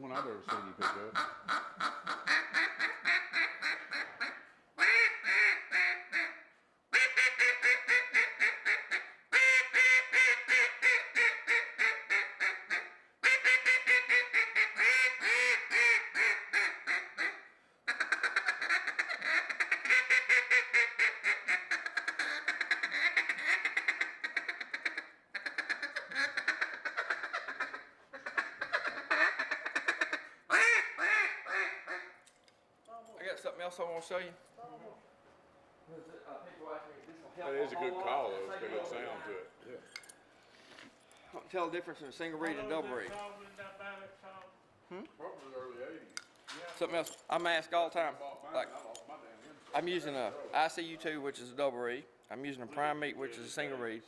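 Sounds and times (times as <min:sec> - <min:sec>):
duck call quacking: 0:00.1 - 0:32.2.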